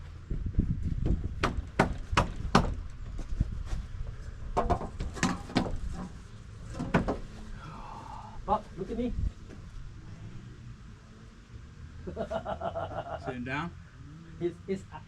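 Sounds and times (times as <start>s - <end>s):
hammer striking wood: 1.4s - 2.8s.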